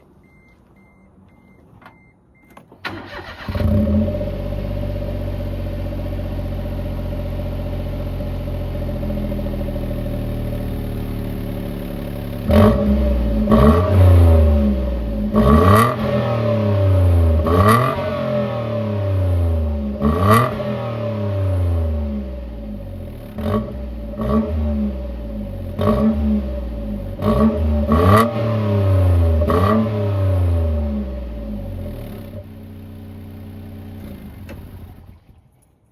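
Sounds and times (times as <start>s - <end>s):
car engine starting and idling: 0.0s - 35.9s
faint beep: 0.2s - 2.7s
engine revving: 2.9s - 32.4s.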